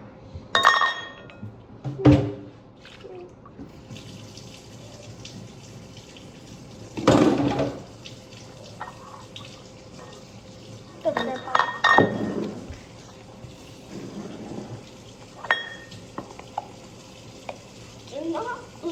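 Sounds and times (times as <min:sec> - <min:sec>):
glass and dishes clinking: 0:00.6 - 0:01.5, 0:11.1 - 0:12.7, 0:15.4 - 0:16.7
dishes clattering: 0:00.6 - 0:02.4, 0:07.0 - 0:07.9, 0:08.7 - 0:10.2, 0:11.0 - 0:13.0, 0:13.9 - 0:17.6
tap running into a sink: 0:03.6 - 0:10.4, 0:11.0 - 0:18.2.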